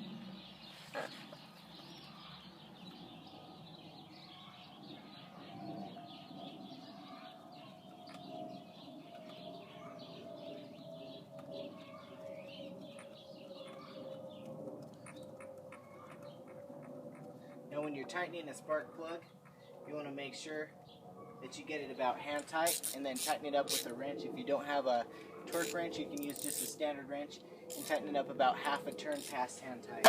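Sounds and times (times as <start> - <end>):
faint birds chirping: 0.0 - 30.0
steady drone falling in pitch: 4.7 - 21.0.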